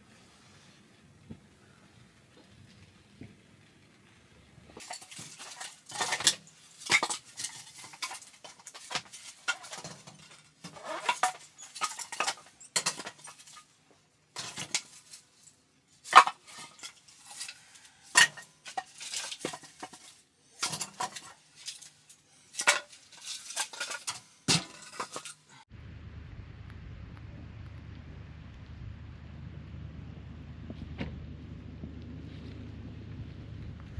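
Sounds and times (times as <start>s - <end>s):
dishes and utensils clattering: 4.8s - 13.7s, 14.4s - 15.3s, 16.0s - 25.6s.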